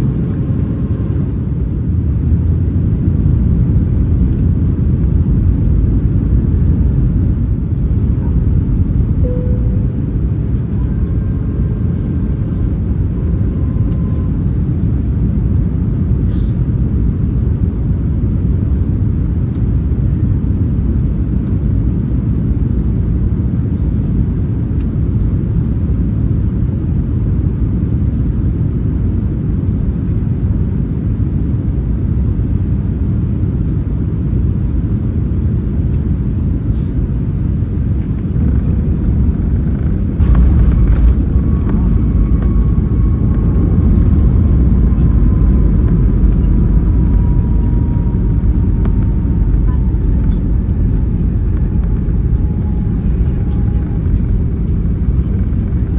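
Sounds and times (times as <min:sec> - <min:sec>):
jet engines roaring: 0:37.3 - 0:55.9
rushing air: 0:37.8 - 0:55.9.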